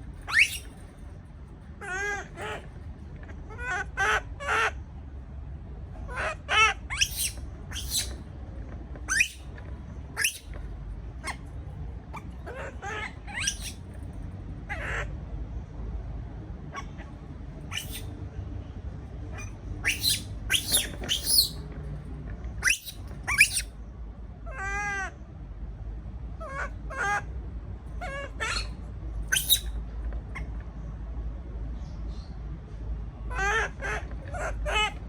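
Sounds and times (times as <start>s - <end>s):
baby monkey crying: 0.2s - 0.7s, 6.1s - 8.2s, 9.1s - 9.4s, 10.2s - 10.5s, 12.2s - 13.8s, 17.7s - 18.1s, 19.4s - 21.6s, 22.6s - 23.7s, 28.0s - 29.7s.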